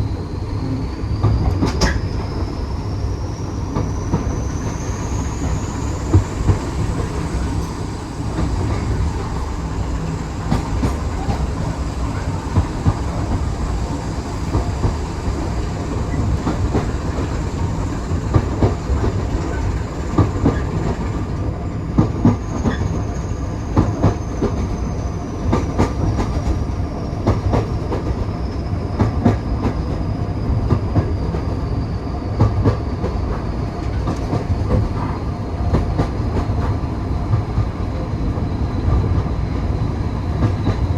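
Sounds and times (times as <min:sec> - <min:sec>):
train carriage rumbling on track: 0:00.0 - 0:40.9
wheels clicking over rail joints: 0:04.7 - 0:21.1.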